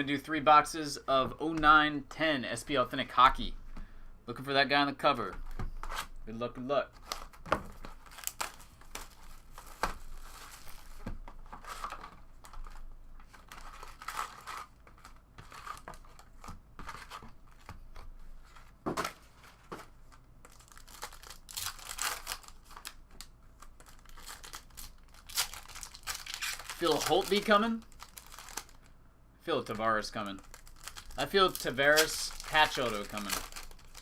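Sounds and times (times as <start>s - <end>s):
plastic wrapping tearing and crinkling: 7.0s - 16.4s, 20.4s - 28.9s, 30.2s - 34.0s.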